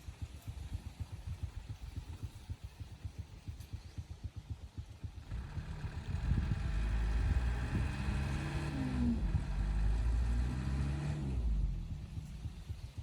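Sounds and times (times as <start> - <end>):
heavy truck engine revving: 5.3 - 12.2.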